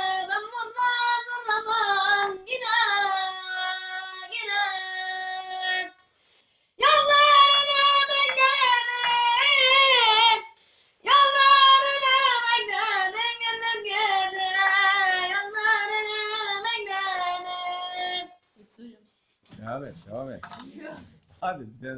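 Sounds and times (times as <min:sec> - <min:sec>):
child singing unaccompanied: 0:00.0 - 0:06.0, 0:06.8 - 0:18.4.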